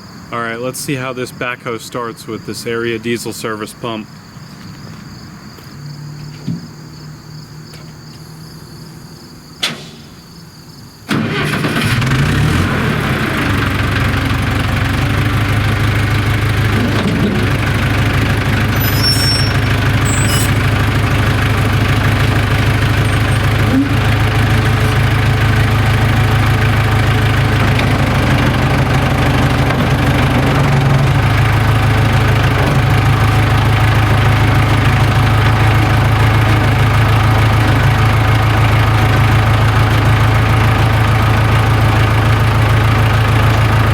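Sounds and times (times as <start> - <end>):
diesel engine starting and idling: 6.7 - 43.9.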